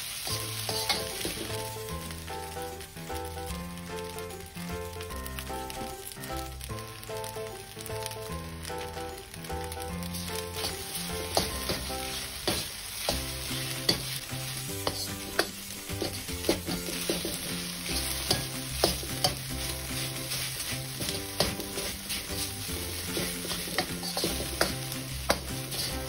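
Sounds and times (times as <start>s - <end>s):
rice sizzling in a wok: 0.0s - 26.0s
metal ladle scraping a wok: 0.6s - 1.6s, 10.1s - 26.0s
ladle knocking on pan: 14.8s - 19.5s, 23.1s - 25.9s.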